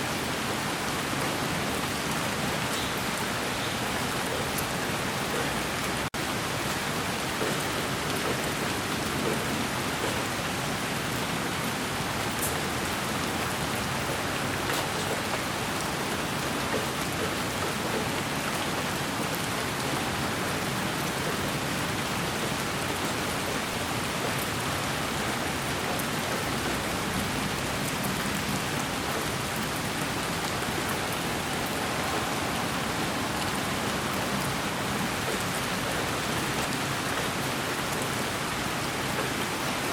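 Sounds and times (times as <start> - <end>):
white noise hiss: 29.6 - 37.8.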